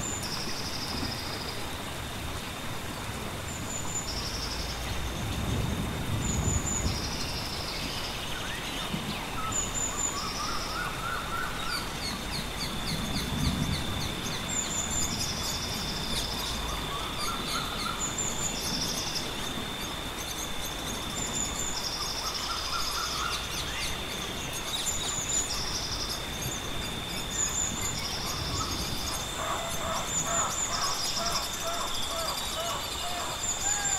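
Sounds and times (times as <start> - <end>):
birds chirping: 20.8 - 33.9
birds calling: 27.3 - 33.9.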